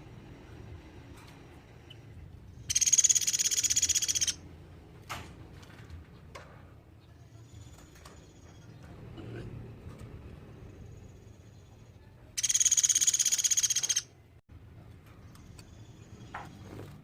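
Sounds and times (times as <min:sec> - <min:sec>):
woodpecker trill: 0:02.6 - 0:04.4, 0:12.4 - 0:14.1.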